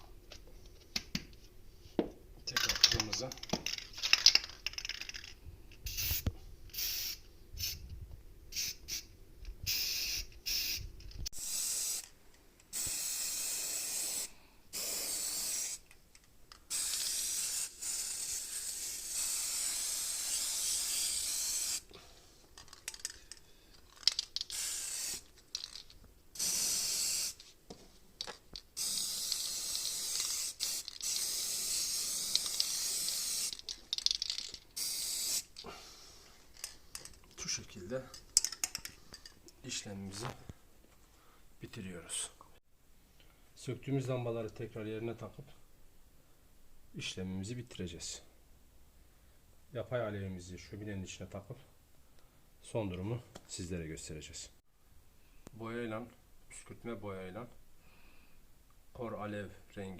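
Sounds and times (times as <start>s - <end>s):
spray paint hissing: 5.9s - 7.8s, 8.5s - 15.9s, 16.6s - 21.9s, 24.0s - 27.5s, 28.6s - 35.6s.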